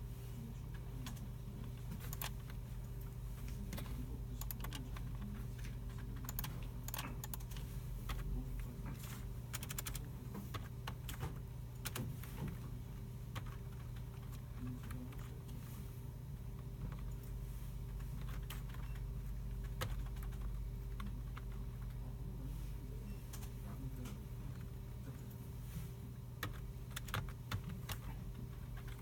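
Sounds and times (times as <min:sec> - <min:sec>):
low hum of machinery: 0:00.0 - 0:29.0
computer keyboards clicking: 0:00.7 - 0:12.7, 0:13.3 - 0:15.4, 0:16.6 - 0:22.0, 0:26.4 - 0:29.0.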